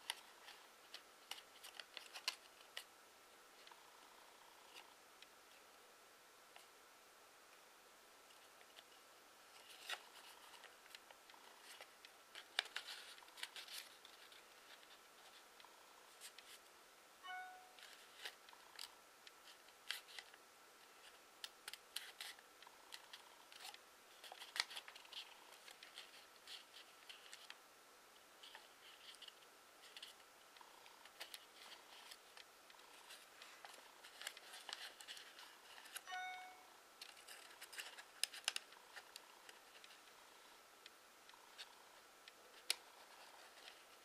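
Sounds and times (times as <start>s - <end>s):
paper crinkling while folded: 0.0s - 2.9s, 8.3s - 16.7s, 17.8s - 27.6s, 28.4s - 30.2s, 31.0s - 36.1s, 37.0s - 40.2s, 42.5s - 44.0s.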